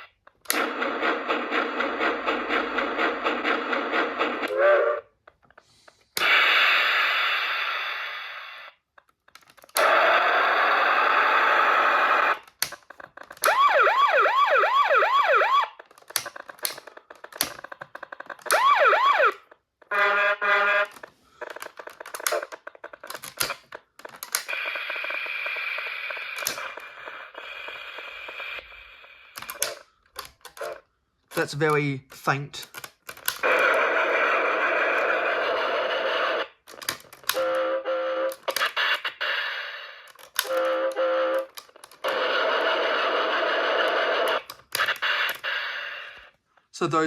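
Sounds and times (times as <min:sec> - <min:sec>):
wailing siren: 0:13.4 - 0:15.8, 0:18.5 - 0:20.9
horn-like tone: 0:19.9 - 0:20.9.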